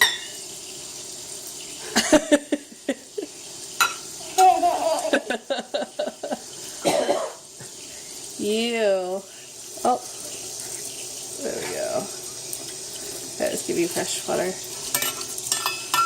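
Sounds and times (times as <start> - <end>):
dishes clattering in a sink: 0.0 - 0.5, 3.8 - 6.1, 14.8 - 16.0
toddler playing in water: 3.8 - 5.5.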